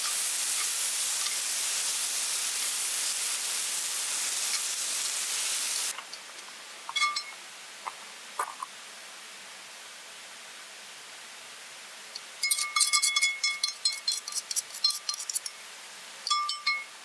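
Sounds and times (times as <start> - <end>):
food sizzling in a pan: 0.0 - 8.7, 12.2 - 15.7
light metallic clink: 6.9 - 7.4, 16.3 - 16.9.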